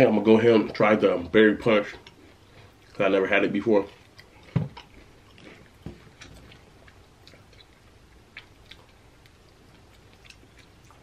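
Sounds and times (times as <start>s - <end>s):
chewing chips: 3.8s - 11.0s.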